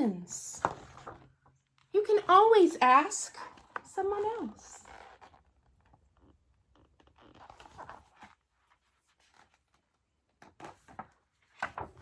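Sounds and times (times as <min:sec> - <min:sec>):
paper pages rustling: 0:00.6 - 0:02.3, 0:04.6 - 0:12.0.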